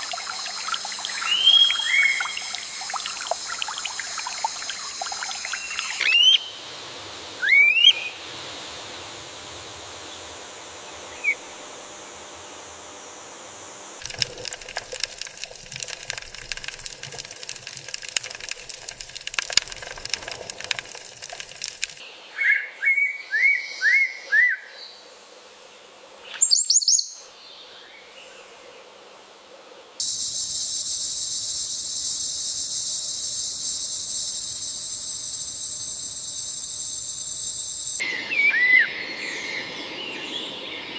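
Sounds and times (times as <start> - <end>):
high insect trill: 0.0 - 6.7, 14.0 - 22.0, 30.0 - 38.3
birds chirping and whistling: 1.2 - 2.5, 5.6 - 6.5.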